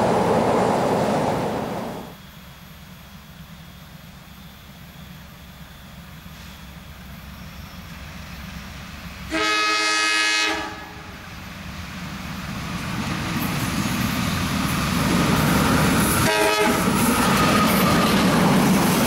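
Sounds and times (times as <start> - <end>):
train rumbling: 0.0 - 19.0
train horn blast: 9.3 - 11.1, 16.2 - 17.0.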